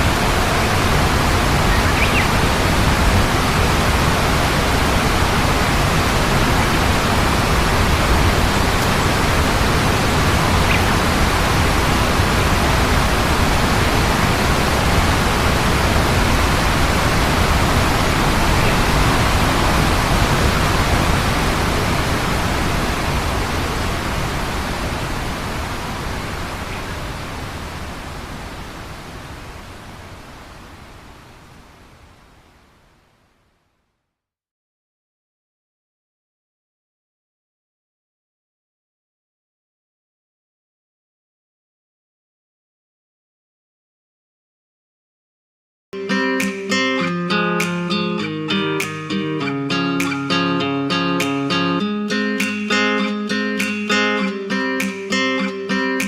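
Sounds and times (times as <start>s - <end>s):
loud rushing noise: 0.0s - 24.9s.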